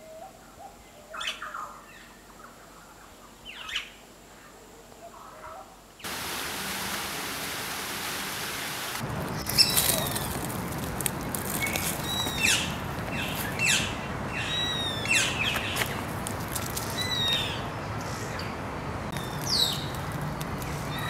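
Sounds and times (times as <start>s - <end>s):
steady background noise: 0.0s - 21.0s
birds chirping: 8.1s - 10.5s, 11.1s - 16.2s, 16.8s - 21.0s.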